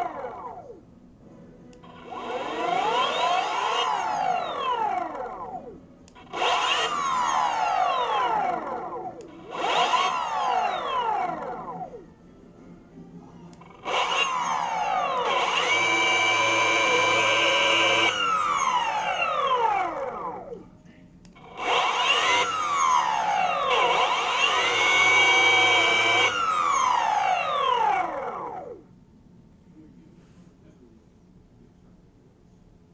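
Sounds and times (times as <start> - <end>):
electric motor whine: 1.8 - 12.0, 13.6 - 20.6, 21.4 - 28.8.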